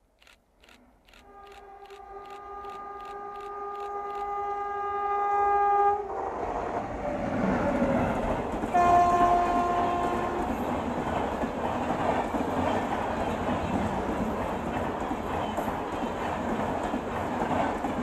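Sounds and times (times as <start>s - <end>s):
train horn: 1.2s - 6.3s, 7.3s - 10.7s
train rushing past: 1.3s - 18.0s.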